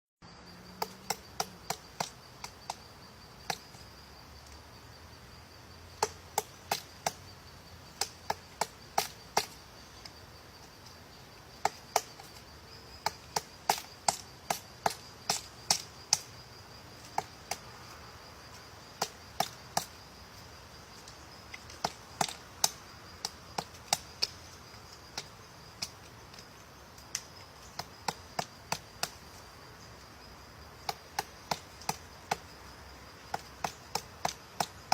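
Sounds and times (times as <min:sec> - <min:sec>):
woodpecker pecking at wood: 0:00.8 - 0:03.9, 0:05.9 - 0:16.3, 0:18.9 - 0:20.0, 0:21.0 - 0:29.4, 0:30.8 - 0:32.6, 0:33.2 - 0:34.9.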